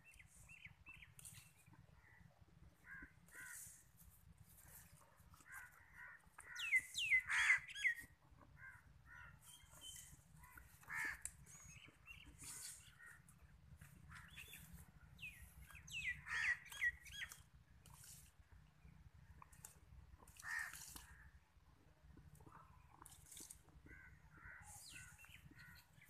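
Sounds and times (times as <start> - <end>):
birds squawking: 5.5 - 11.8, 15.8 - 17.3.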